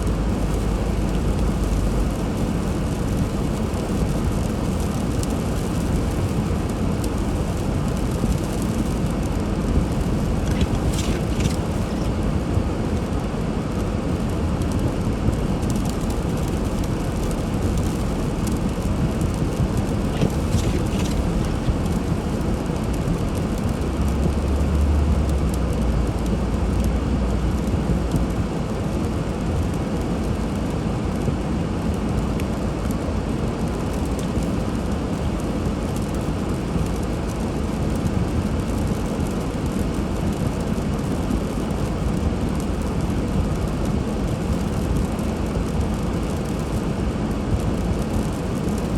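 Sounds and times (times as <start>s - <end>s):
deep rumble: 6.0s - 29.6s
car engine: 7.3s - 13.0s, 15.0s - 28.3s
tyre noise on snow: 9.7s - 12.4s, 19.3s - 22.5s.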